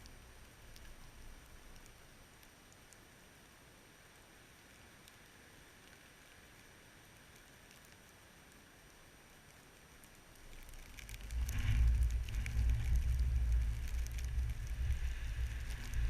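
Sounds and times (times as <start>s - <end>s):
wind gusting over microphone: 11.1s - 16.0s.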